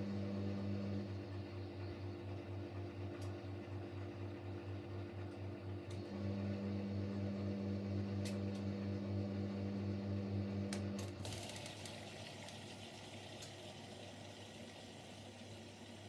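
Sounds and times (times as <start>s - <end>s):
drain pump hum: 5.9s - 16.0s.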